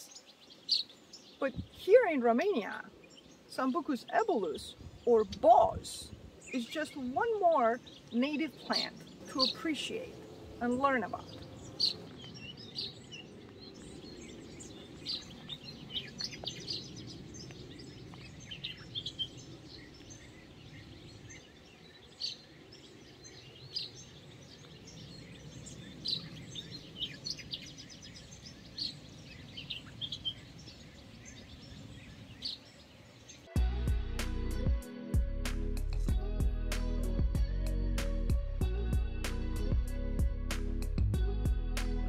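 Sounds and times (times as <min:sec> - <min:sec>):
small birds chirping: 0:00.0 - 0:33.6.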